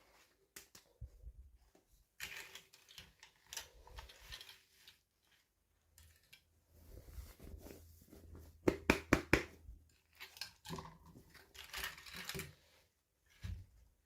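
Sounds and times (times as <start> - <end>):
plastic toy pieces clicking: 2.2 - 5.0.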